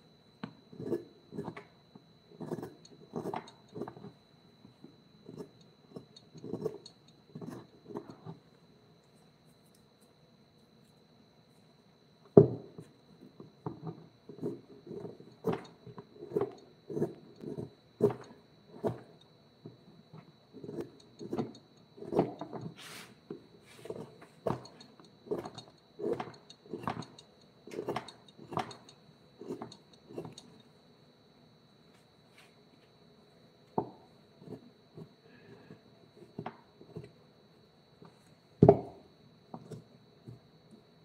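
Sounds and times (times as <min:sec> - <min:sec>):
faint high whine: 0:00.0 - 0:41.0
brief hiss: 0:22.8 - 0:23.2.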